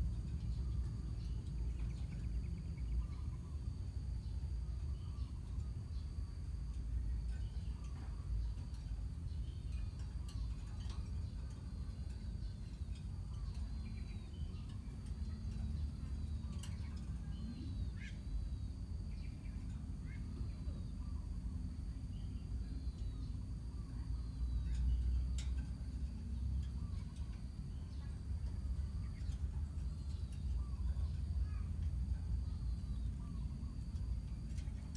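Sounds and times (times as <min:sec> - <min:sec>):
steady low rumble: 0:00.0 - 0:34.9
birds chirping and squeaking: 0:07.3 - 0:19.6.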